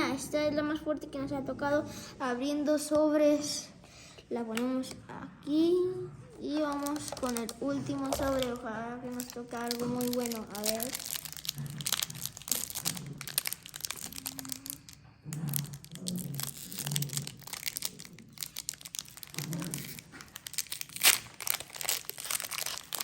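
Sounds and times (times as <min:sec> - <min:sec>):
foil wrapper tearing and crinkling: 0:06.6 - 0:23.0.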